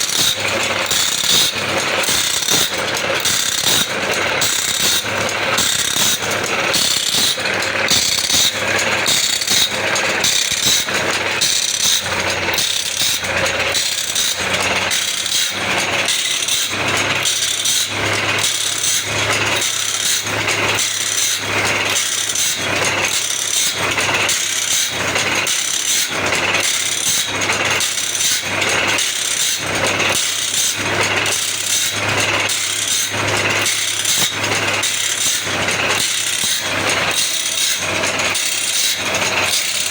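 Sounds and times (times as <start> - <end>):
motor hum: 0.0 - 23.2
grinding wheel rasping on teeth: 0.0 - 39.9.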